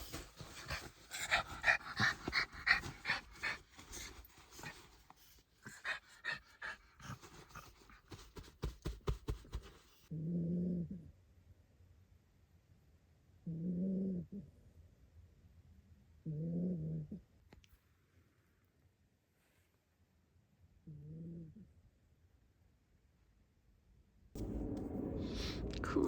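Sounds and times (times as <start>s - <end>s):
short low hum: 24.4s - 26.0s.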